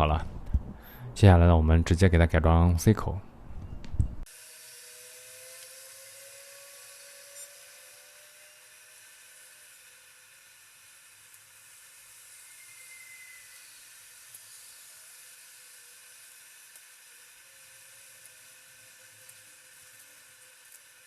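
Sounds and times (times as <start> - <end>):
faint steady hiss: 7.3 - 21.0
faint whistle-like tone: 12.2 - 15.0.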